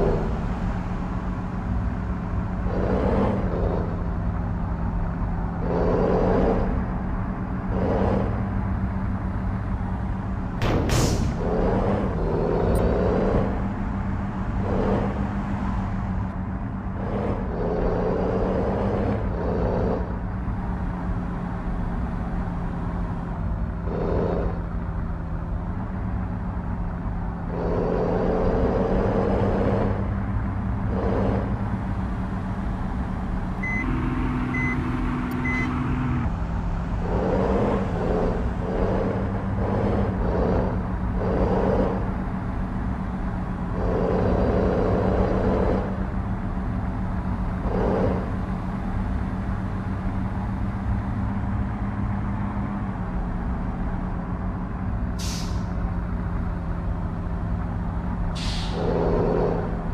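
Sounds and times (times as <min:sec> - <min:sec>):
traffic passing: 0:00.0 - 0:59.9
truck diesel engine running: 0:00.0 - 0:59.9
short high beeps: 0:33.6 - 0:35.8.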